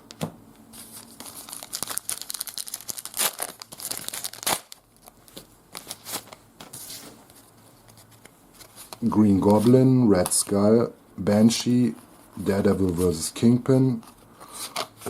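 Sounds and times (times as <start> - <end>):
wrapper crinkling: 0.8 - 6.4
wrapper tearing snaps: 1.3 - 5.2.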